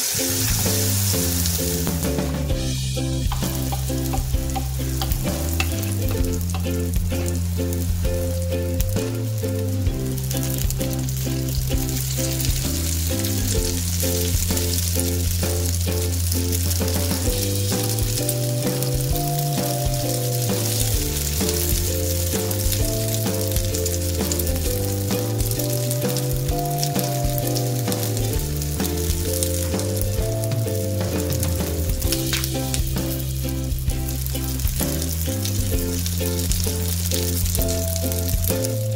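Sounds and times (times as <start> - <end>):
batter sizzling in a pan: 0.0 - 2.0, 10.0 - 38.8
background music: 0.0 - 38.9.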